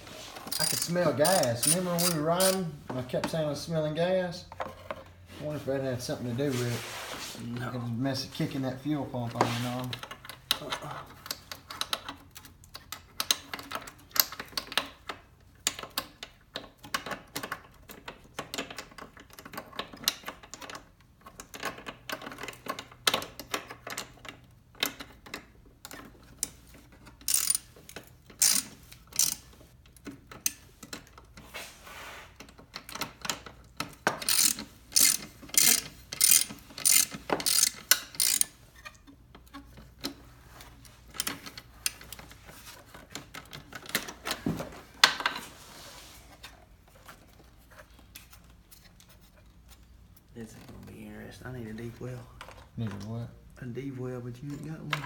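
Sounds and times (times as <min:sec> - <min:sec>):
ratchet wrench clicking: 0:00.5 - 0:02.6, 0:27.2 - 0:27.7, 0:28.4 - 0:29.5, 0:34.2 - 0:38.6.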